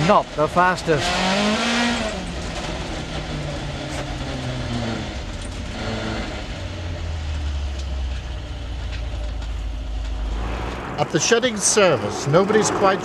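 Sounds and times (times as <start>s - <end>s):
rally car engine revving: 0.0s - 13.0s
road and tyre noise: 0.0s - 13.0s.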